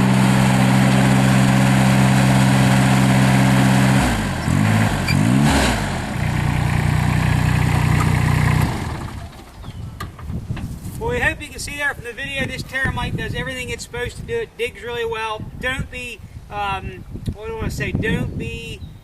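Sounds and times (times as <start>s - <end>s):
diesel engine running: 0.0s - 9.8s.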